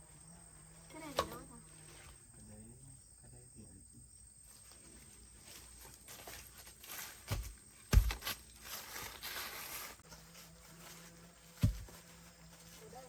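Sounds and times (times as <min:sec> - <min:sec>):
objects rustling and scraping: 0:04.4 - 0:13.0
dull thumps: 0:07.2 - 0:08.4, 0:11.6 - 0:12.0.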